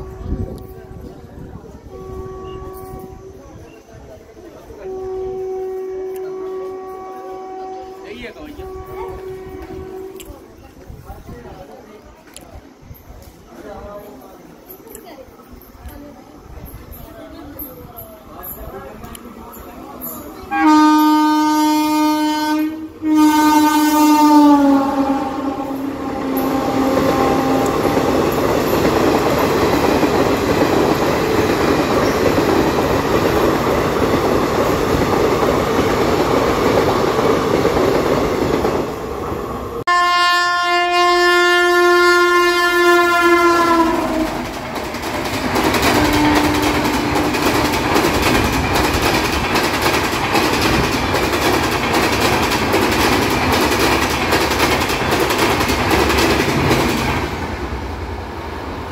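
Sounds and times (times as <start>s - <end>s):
locomotive horn: 0.0s - 1.2s, 1.8s - 3.4s, 4.7s - 10.4s, 20.4s - 28.4s, 39.8s - 44.6s, 45.8s - 48.0s
train cars rumbling and rattling: 0.0s - 58.9s.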